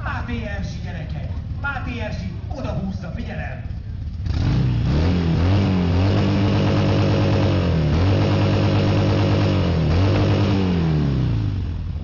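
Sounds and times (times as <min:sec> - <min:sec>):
motorcycle engine revving hard: 0:04.1 - 0:12.0.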